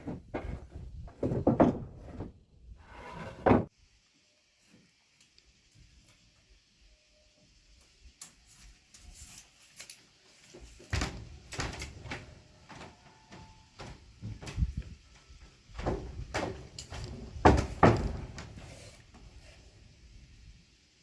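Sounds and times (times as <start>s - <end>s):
wooden parts knocking and scraping: 0.0s - 3.7s, 15.7s - 19.0s.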